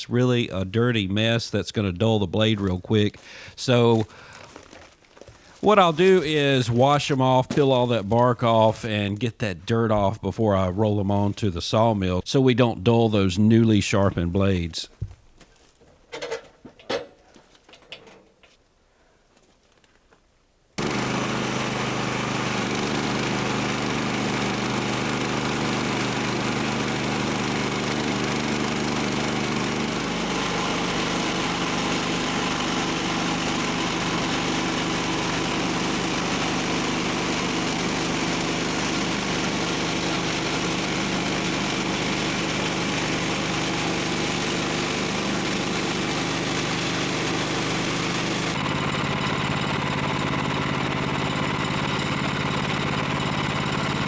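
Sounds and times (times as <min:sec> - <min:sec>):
small gasoline engine running: 0:05.6 - 0:06.6, 0:20.8 - 0:54.0.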